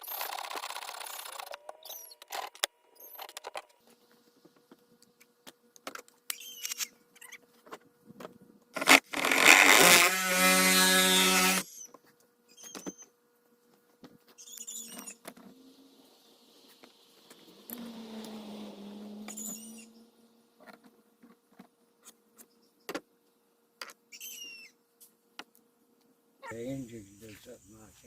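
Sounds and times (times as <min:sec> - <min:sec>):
tool scraping fiberglass hull: 0:08.8 - 0:11.7
scrape squealing: 0:17.3 - 0:20.2.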